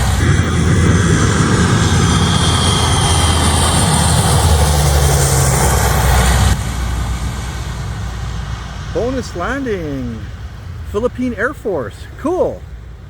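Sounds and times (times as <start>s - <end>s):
faint high whine: 0.0s - 5.3s, 8.3s - 13.0s
propeller plane engine drone: 0.0s - 13.0s.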